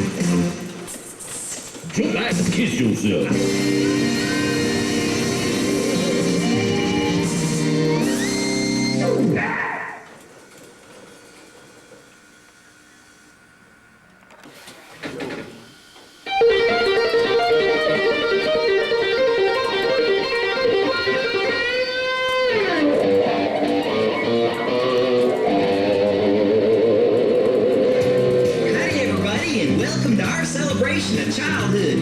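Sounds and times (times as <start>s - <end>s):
electric guitar plucked notes: 3.3s - 9.4s, 16.3s - 32.0s.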